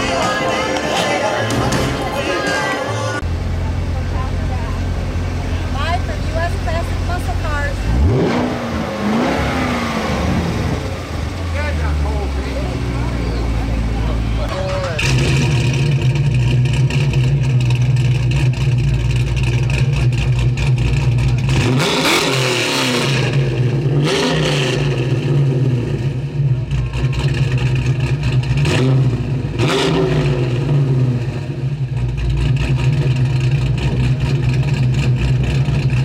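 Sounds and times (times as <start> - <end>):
car engine idling and revving: 0.0 - 36.0.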